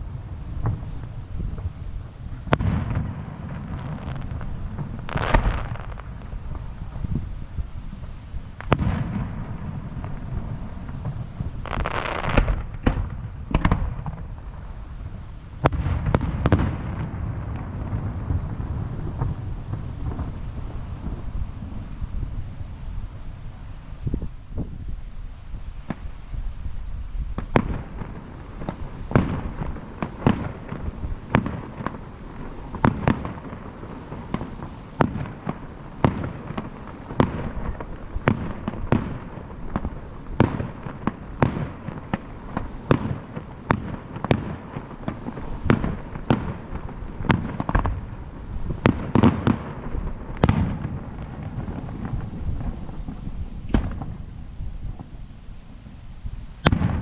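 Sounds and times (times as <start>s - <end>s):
fireworks bursting with rumbling echo: 0.0s - 57.0s.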